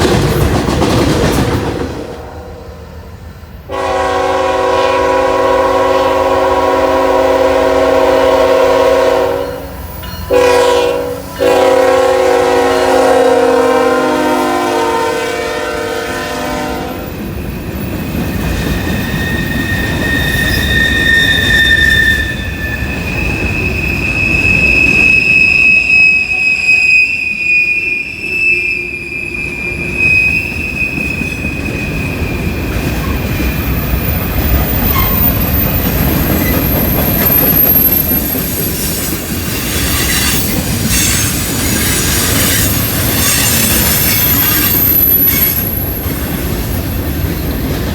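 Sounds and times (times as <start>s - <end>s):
train wheels rumbling on rail: 0.0s - 28.2s, 28.8s - 47.9s
train horn chord: 3.7s - 9.7s, 10.3s - 17.0s
steel wheels squealing: 9.4s - 10.5s, 17.1s - 46.6s.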